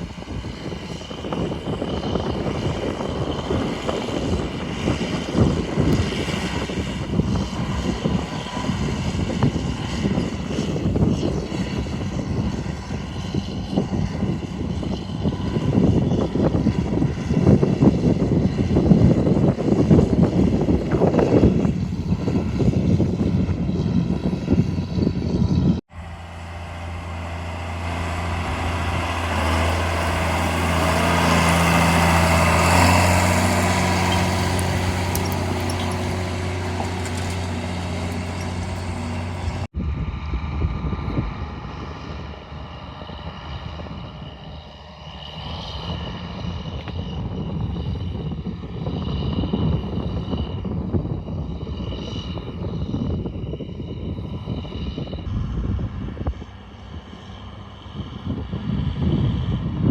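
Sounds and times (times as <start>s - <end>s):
tractor diesel engine running: 0.0s - 39.7s
wind: 0.0s - 59.9s.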